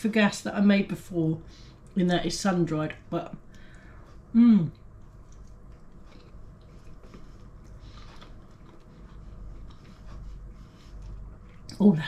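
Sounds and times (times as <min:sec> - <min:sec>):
low room hum: 0:00.0 - 0:12.0
chewing bread: 0:03.6 - 0:12.0.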